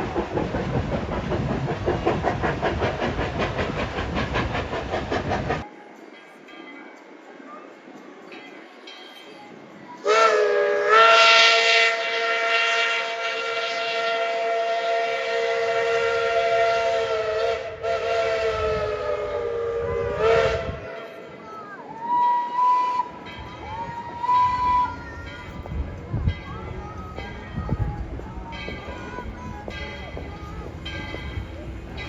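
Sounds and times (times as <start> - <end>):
steam locomotive chime whistle: 10.0 - 32.0.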